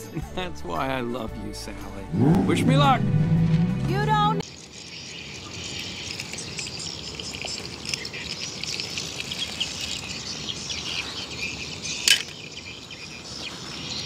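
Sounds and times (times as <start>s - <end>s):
small birds chirping: 3.9s - 14.0s.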